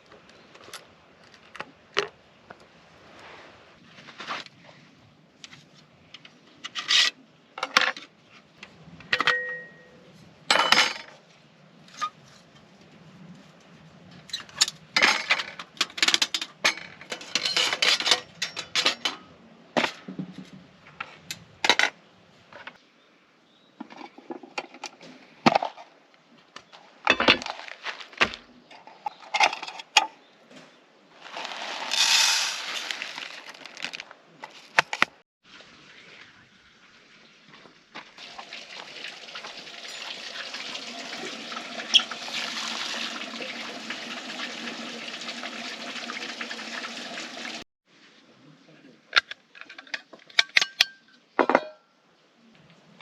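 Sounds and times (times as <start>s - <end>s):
hard objects clinking and clattering: 14.5s - 19.2s, 31.2s - 35.2s.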